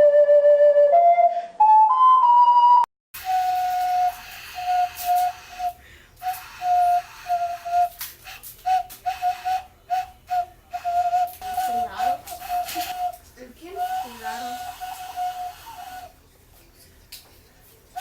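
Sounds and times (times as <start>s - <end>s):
carrot ocarina toots: 3.2s - 13.2s.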